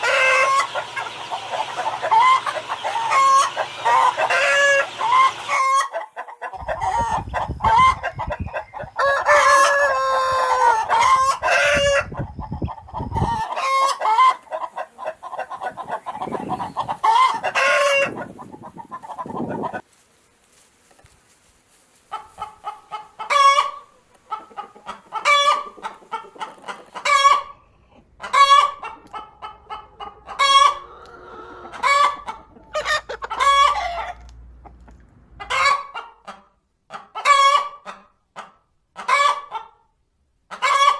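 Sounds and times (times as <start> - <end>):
chickens clucking: 0.0 - 19.9, 22.1 - 39.8, 40.5 - 40.9.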